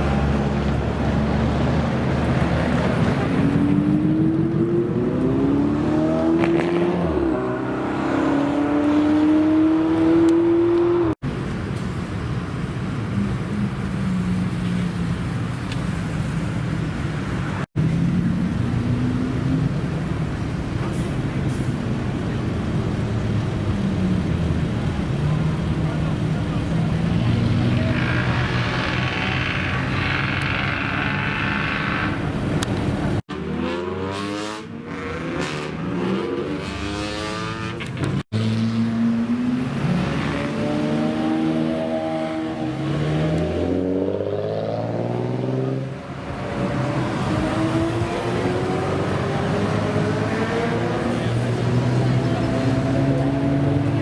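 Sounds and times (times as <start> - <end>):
another car engine: 17.7 - 33.3
car engine revving: 23.2 - 54.0.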